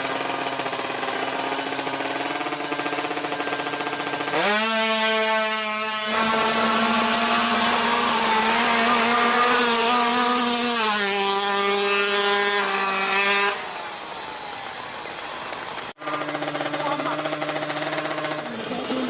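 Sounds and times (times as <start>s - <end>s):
motorcycle engine at high revs: 0.0s - 14.0s, 15.7s - 19.0s.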